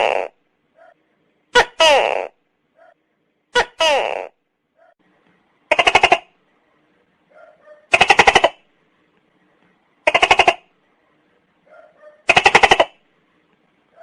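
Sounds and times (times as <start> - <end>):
gecko calling in rapid pulses: 7.9 - 8.6, 10.1 - 10.7, 12.2 - 13.0.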